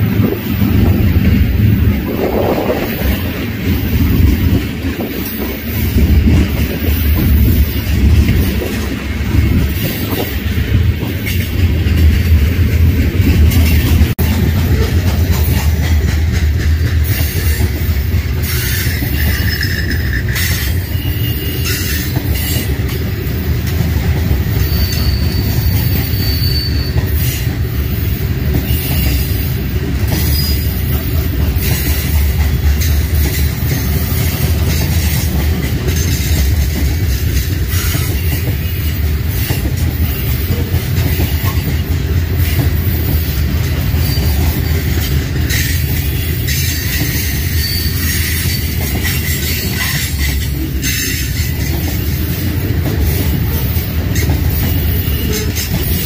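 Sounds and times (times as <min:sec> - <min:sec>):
freight train wheels rumbling: 0:00.0 - 0:56.0
wheels clacking on rail joints: 0:00.0 - 0:56.0
wheel squeals: 0:18.4 - 0:22.8, 0:24.5 - 0:31.0, 0:42.4 - 0:52.4, 0:53.0 - 0:56.0.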